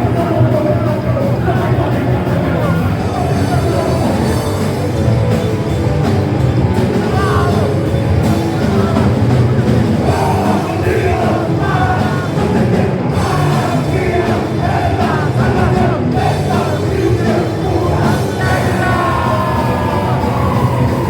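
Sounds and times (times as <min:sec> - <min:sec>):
punk rock band playing: 0:00.0 - 0:21.0
singer shouting: 0:07.0 - 0:09.2, 0:10.0 - 0:21.0.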